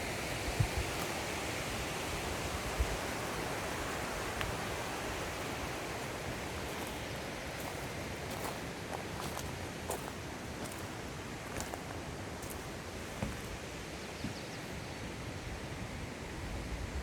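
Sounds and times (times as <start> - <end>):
stream water rushing: 0.0 - 14.0.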